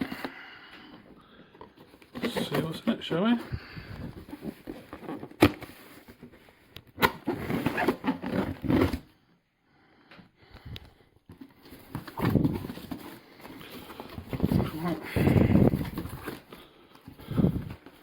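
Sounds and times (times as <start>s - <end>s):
handling noises: 0.0s - 9.1s, 10.6s - 18.0s
cardboard and plastic rustling: 0.0s - 9.2s, 11.2s - 18.0s.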